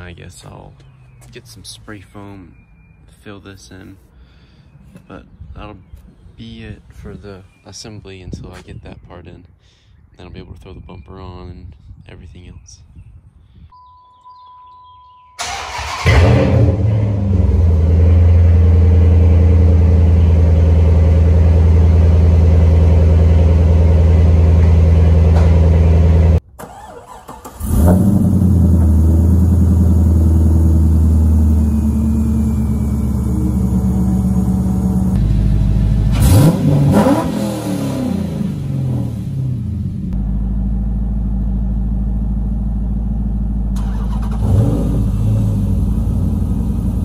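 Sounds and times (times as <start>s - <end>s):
short beep: 13.7s - 15.4s
car engine starting and idling: 15.4s - 47.0s.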